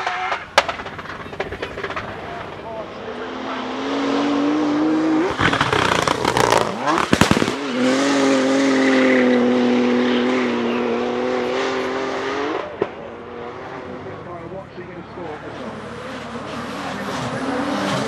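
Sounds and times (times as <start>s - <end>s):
engine crackles and bangs: 0.0s - 3.1s, 5.1s - 8.5s, 12.6s - 13.2s
car engine at high revs: 0.0s - 18.0s.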